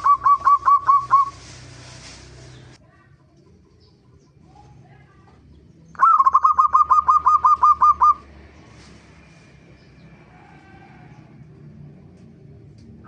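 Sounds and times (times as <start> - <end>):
dove calling: 0.0 - 2.8, 5.8 - 8.4.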